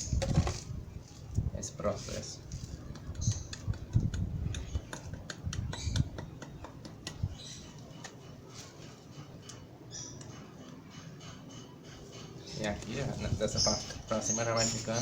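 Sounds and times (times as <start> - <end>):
cement tubes clicking and knocking: 2.9 - 7.3.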